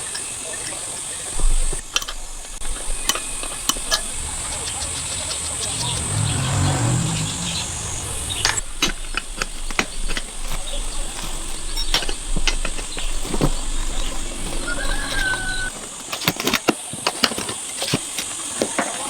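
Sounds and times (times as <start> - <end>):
low hum: 1.8 - 15.7.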